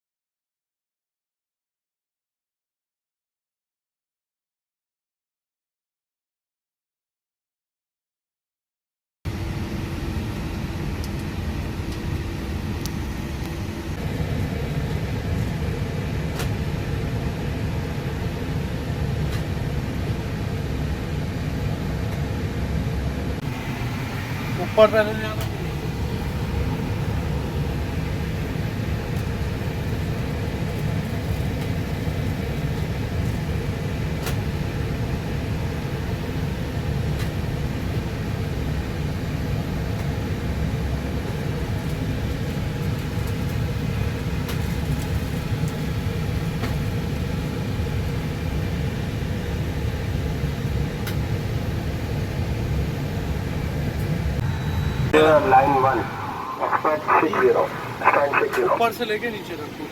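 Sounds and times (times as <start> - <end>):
aircraft engine rumble: 23.4 - 59.9
faint steady hum: 23.4 - 59.9.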